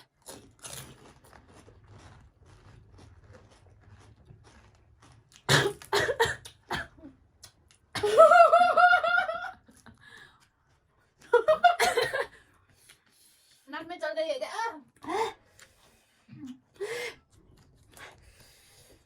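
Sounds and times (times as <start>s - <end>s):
woman coughing: 5.5s - 7.1s, 11.7s - 12.3s.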